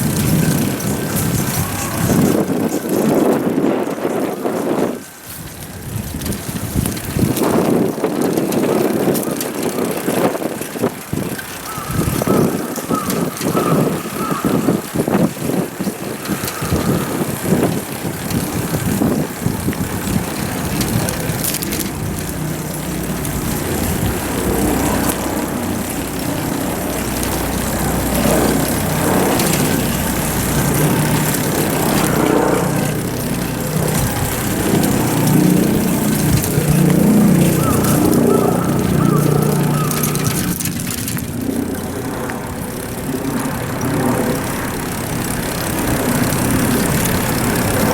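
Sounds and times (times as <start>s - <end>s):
bicycle rumbling and clatter: 0.0s - 47.9s
low engine hum: 11.6s - 47.9s.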